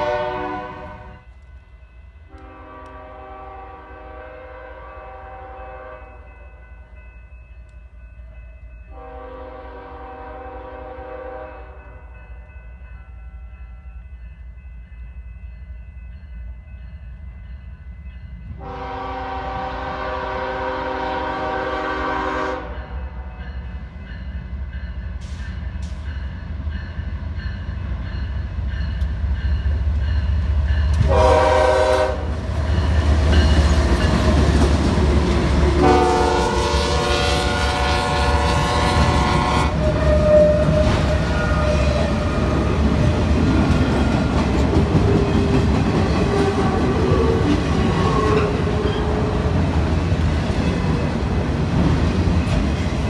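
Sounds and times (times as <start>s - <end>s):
locomotive air horn blasts: 0.0s - 1.2s, 2.4s - 6.2s, 8.9s - 11.8s, 18.6s - 22.9s, 31.0s - 32.3s, 35.6s - 42.1s
engine and wheels rumbling on rail: 0.0s - 53.0s.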